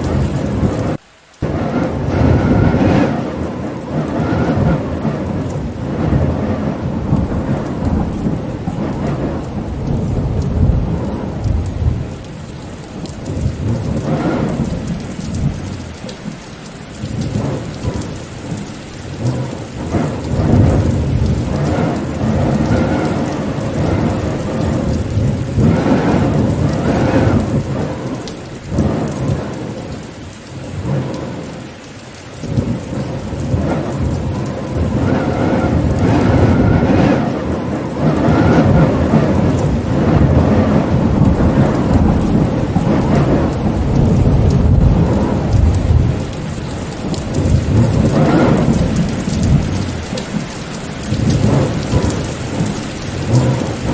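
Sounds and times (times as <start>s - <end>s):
steady rain: 0.0s - 53.9s
low rumbling: 32.5s - 53.9s.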